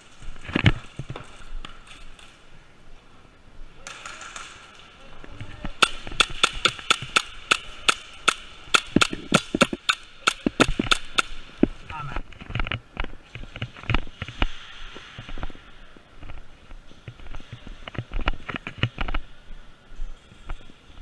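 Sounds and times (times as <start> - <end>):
airsoft gun firing: 5.8 - 11.4.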